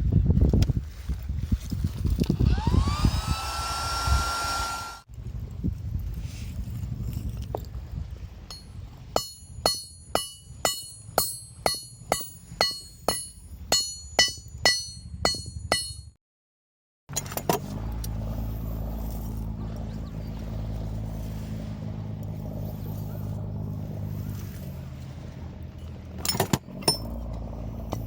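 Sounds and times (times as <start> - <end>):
hammer ringing on steel: 8.5 - 16.2
steady low rumble: 17.7 - 28.0.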